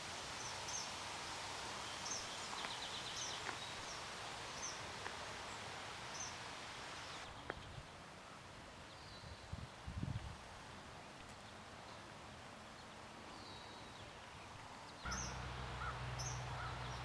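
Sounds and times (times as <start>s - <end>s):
outdoor hiss: 0.0s - 17.0s
small birds chirping: 0.3s - 9.6s, 12.7s - 17.0s
bird trill: 15.1s - 17.0s.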